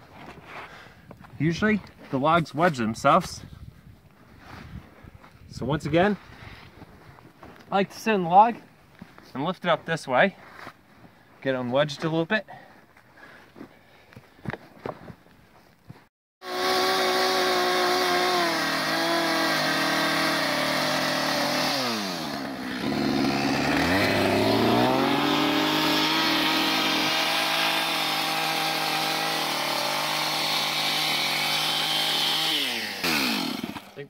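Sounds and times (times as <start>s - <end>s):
chainsaw running at high revs: 16.4s - 34.0s.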